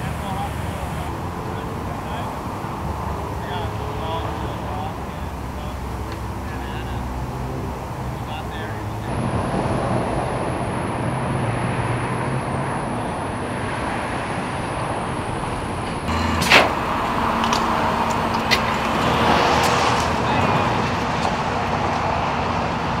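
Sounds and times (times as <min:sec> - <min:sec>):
freeway traffic noise: 0:00.0 - 0:23.0.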